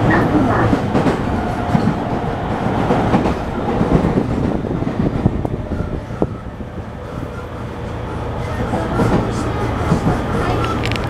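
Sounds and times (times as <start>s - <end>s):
wheels clacking over rail joints: 0.0s - 5.6s, 8.3s - 11.0s
train car rumbling: 0.0s - 11.0s.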